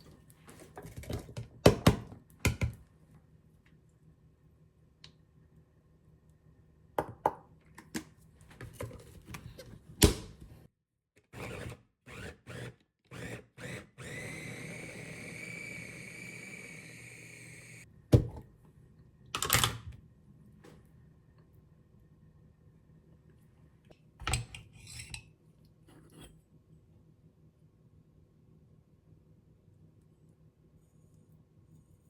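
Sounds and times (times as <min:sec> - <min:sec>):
steady whir with high whine: 0:13.2 - 0:17.8.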